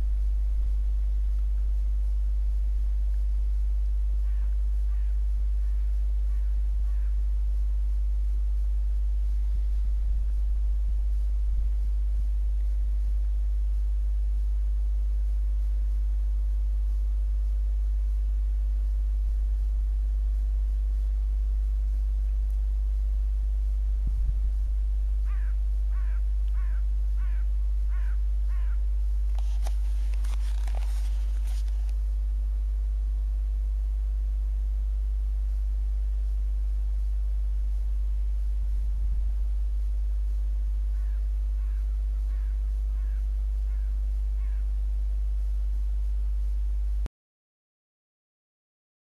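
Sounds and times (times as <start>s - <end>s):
steady low hum: 0.0s - 47.1s
bird calling in short notes: 25.2s - 28.8s
brief crackle: 29.2s - 32.3s.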